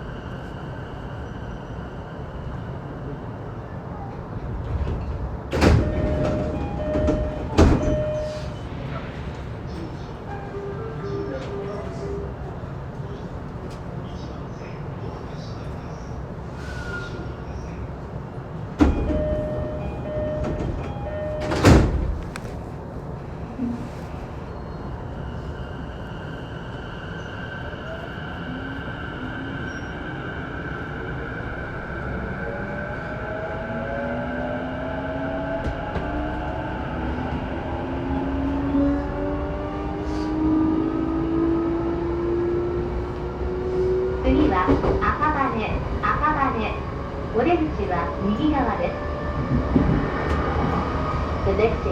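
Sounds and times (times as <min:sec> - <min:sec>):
stopped train rumbling: 0:04.4 - 0:51.9
sliding doors shutting with thump: 0:04.7 - 0:08.1, 0:20.4 - 0:22.5.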